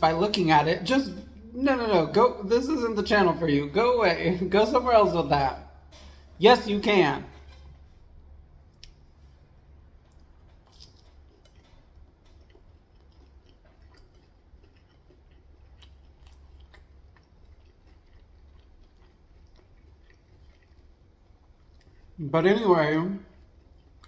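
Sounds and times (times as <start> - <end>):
steady low hum: 0.0 - 24.0
chewing crunchy food: 7.3 - 22.2, 23.2 - 24.0.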